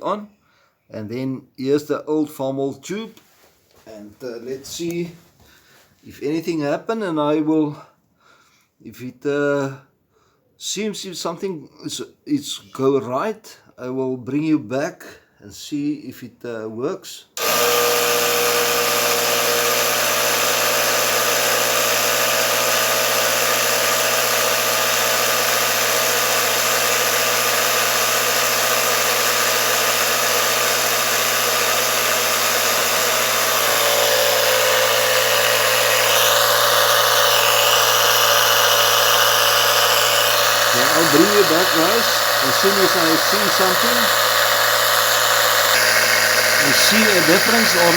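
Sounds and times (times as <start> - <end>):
air compressor running: 17.4 - 47.9.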